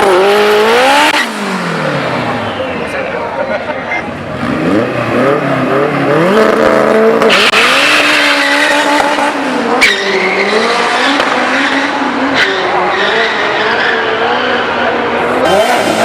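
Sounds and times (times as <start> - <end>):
car engine accelerating: 0.0 - 3.2, 4.0 - 16.0.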